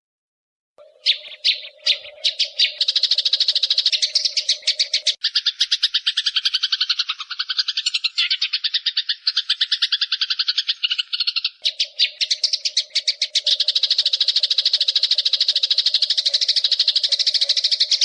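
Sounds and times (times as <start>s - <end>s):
sparrows chirping: 0.8s - 18.0s.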